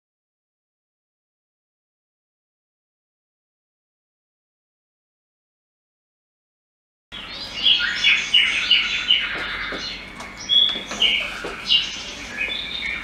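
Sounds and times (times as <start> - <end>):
songbirds chirping and whistling: 7.1 - 13.0.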